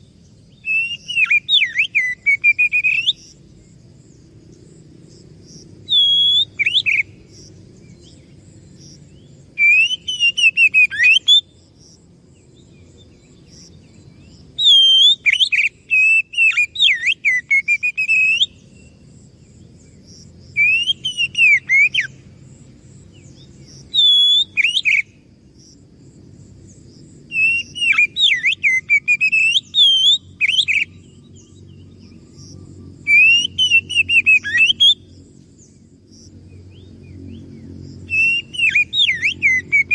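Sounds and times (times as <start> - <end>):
magpie-robin singing: 0.5 - 3.3, 5.8 - 7.2, 9.2 - 11.4, 14.5 - 19.0, 20.6 - 22.2, 23.2 - 25.2, 27.3 - 32.2, 33.1 - 35.0, 38.1 - 39.9.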